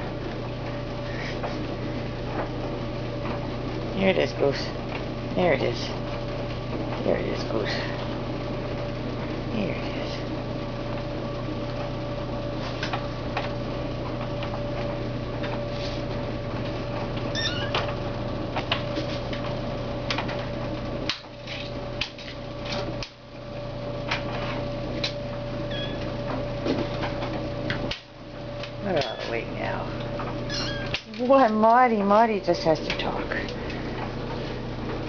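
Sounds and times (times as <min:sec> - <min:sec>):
steady low hum: 0:00.0 - 0:35.0
kitten mewing: 0:30.5 - 0:31.0.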